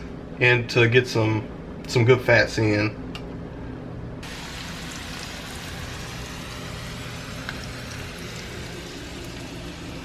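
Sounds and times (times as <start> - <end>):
vegetables sizzling in oil: 4.2 - 10.0.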